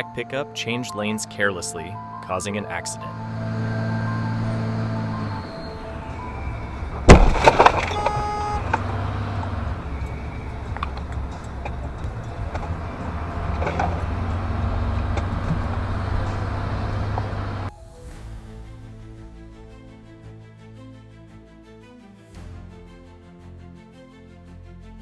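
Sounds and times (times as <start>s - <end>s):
low vehicle rumble: 1.2s - 20.8s
vehicle crash impacts: 3.3s - 17.7s
brief tone: 3.5s - 7.0s, 7.7s - 8.7s.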